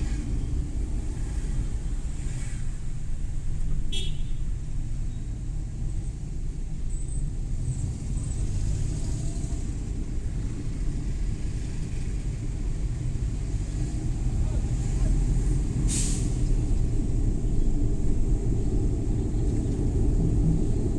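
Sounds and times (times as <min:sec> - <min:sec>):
van engine and road noise: 0:00.0 - 0:20.9.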